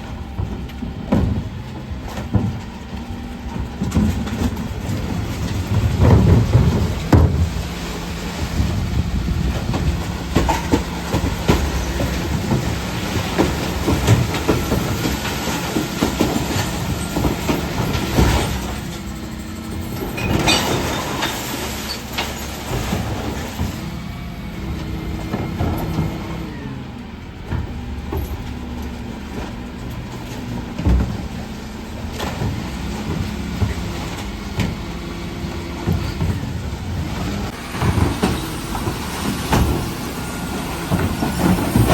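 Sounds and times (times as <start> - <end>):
bins knocking and clattering: 0.0 - 26.5, 27.3 - 41.9
diesel engine running: 0.0 - 41.9
hydraulic bin lifter whining: 0.0 - 41.9.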